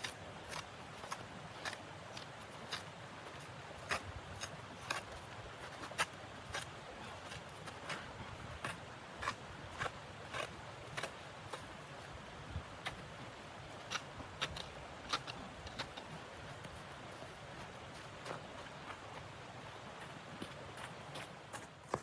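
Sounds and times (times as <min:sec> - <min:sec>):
footsteps crunching in snow: 0:15.8 - 0:22.0.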